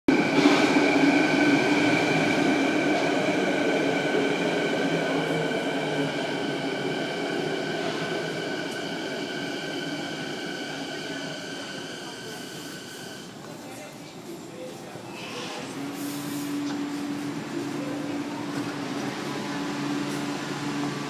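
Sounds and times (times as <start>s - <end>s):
electric train whine: 0.1s - 13.4s.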